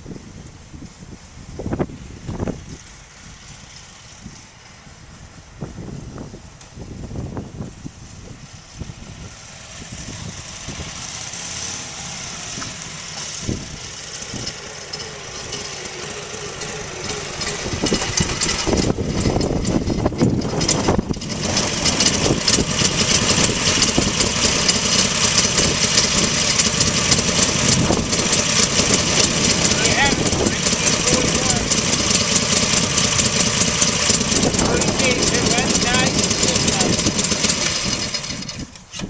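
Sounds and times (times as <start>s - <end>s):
motorcycle engine running: 8.3s - 39.0s.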